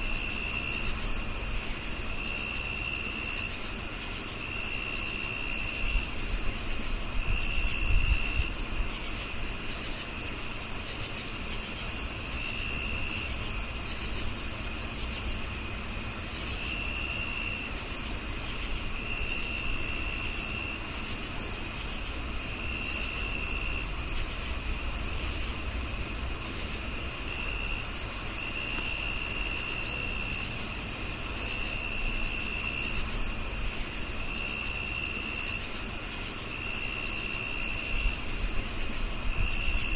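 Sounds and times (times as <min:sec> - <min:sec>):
high-pitched cricket trill: 0:00.0 - 0:39.9
lower cricket trill: 0:00.0 - 0:39.9
regular cricket chirp: 0:00.0 - 0:39.9.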